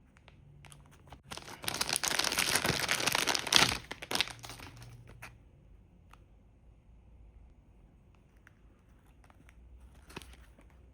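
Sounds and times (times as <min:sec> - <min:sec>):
packaging crinkling: 0:01.2 - 0:05.0.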